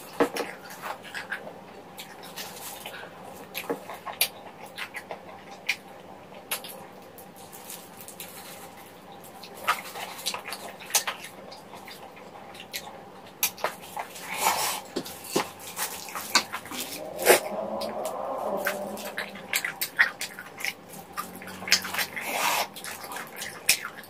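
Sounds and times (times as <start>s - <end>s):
wet chewing clicks and smacks: 0.3s - 7.3s, 8.0s - 14.2s, 19.1s - 24.0s.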